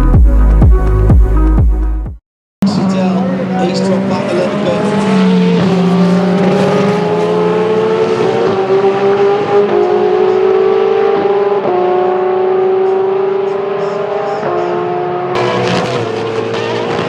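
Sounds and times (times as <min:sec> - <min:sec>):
race car engine accelerating: 0:02.6 - 0:17.0.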